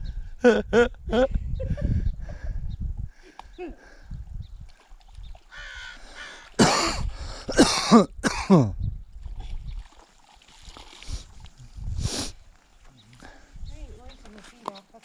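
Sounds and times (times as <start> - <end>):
person coughing: 6.6 - 8.8.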